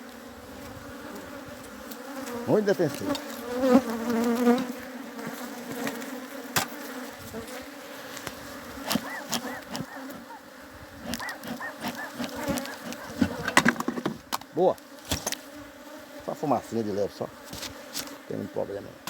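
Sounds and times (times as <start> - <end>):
bees buzzing: 0.0 - 19.0
bees whining close by: 0.0 - 19.0.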